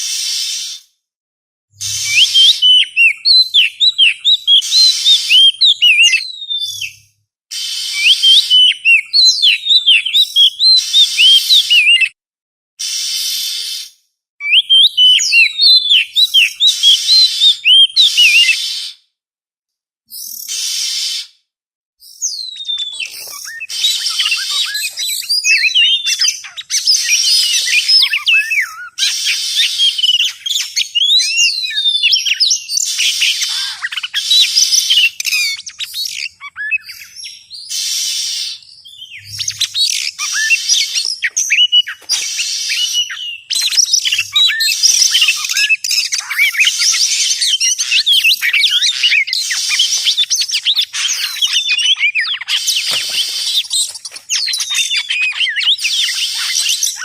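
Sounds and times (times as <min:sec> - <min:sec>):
songbird singing whistles and chirps: 0:00.0 - 0:00.9, 0:01.8 - 0:12.2, 0:12.8 - 0:19.0, 0:20.1 - 0:21.4, 0:22.0 - 0:57.0
harsh scratchy bird notes: 0:22.6 - 0:30.9, 0:37.7 - 0:56.8.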